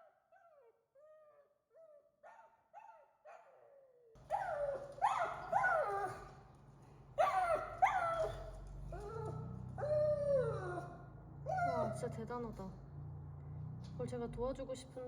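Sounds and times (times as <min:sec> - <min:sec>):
dog barking in high yelps: 0:02.2 - 0:03.7, 0:04.3 - 0:06.3, 0:07.2 - 0:12.0.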